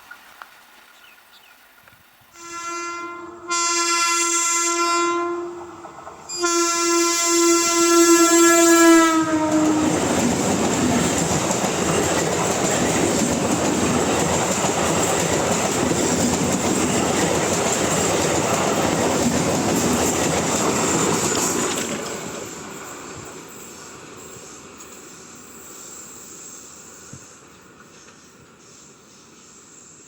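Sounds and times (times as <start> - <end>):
electric train horn: 2.3 - 10.3
train rumbling past: 2.3 - 30.0.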